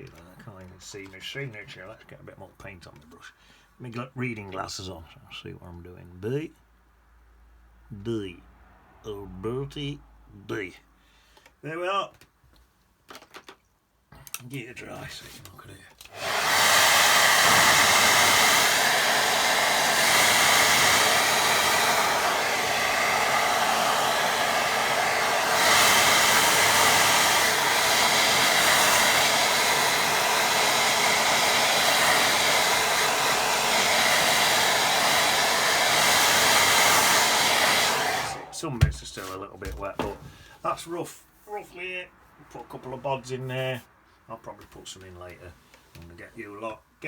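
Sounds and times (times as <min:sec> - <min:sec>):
hair dryer blowing: 0:16.1 - 0:39.3.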